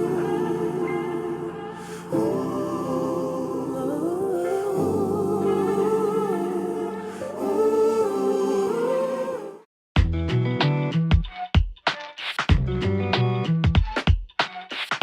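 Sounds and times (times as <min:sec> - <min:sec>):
slow vocal melody over held notes: 0:00.0 - 0:09.7.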